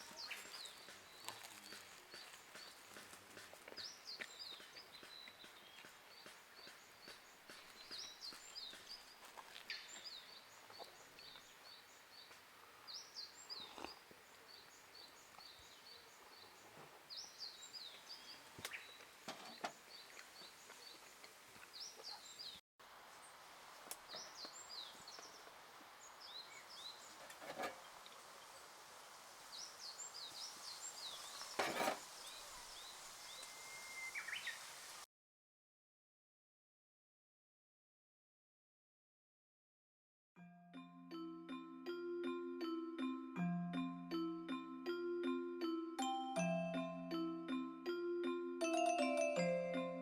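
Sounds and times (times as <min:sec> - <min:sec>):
songbird singing: 0:00.0 - 0:22.6, 0:24.0 - 0:27.2, 0:29.5 - 0:35.0.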